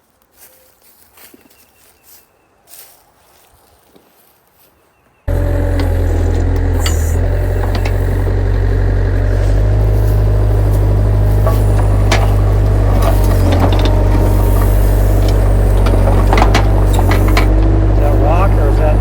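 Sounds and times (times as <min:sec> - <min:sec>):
excavator diesel engine running: 0:05.3 - 0:19.0
knocks and scrapes: 0:05.3 - 0:19.0.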